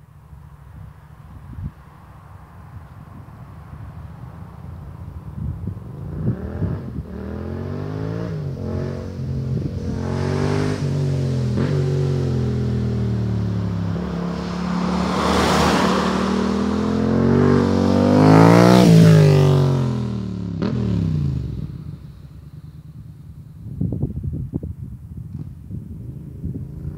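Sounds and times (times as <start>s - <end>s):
motorcycle engine revving: 6.0s - 26.9s.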